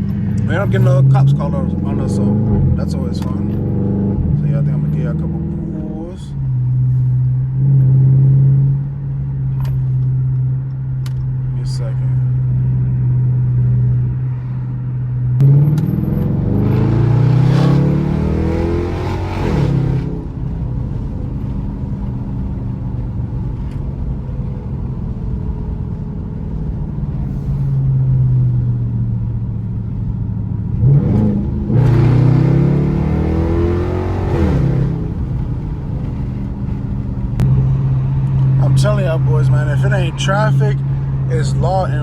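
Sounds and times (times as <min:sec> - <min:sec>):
car engine revving through gears: 0:00.0 - 0:06.0, 0:15.4 - 0:24.6, 0:30.7 - 0:42.0.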